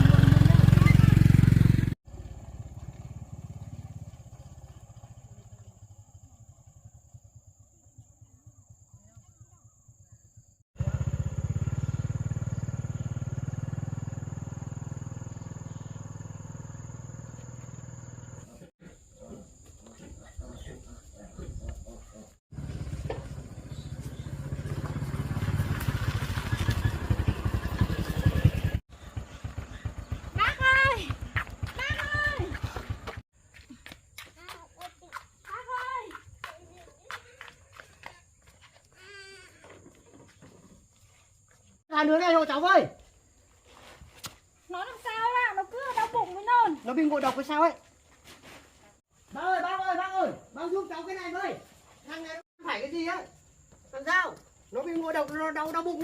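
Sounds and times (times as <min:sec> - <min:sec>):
motorcycle engine running: 0:00.0 - 0:18.7, 0:22.5 - 0:33.2.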